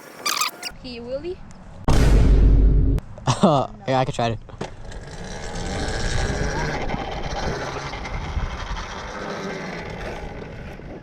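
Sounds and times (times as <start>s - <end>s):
electric dirt bike motor and tyres rolling: 4.6s - 11.0s.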